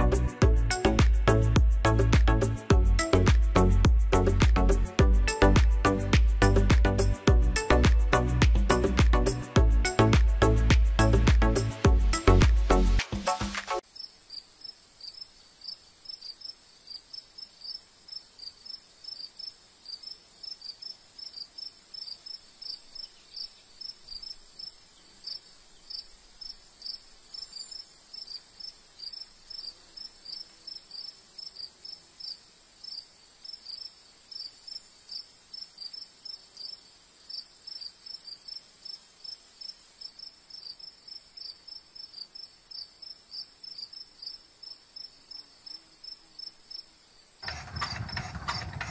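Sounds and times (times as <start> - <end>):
crickets trilling: 13.9 - 47.3.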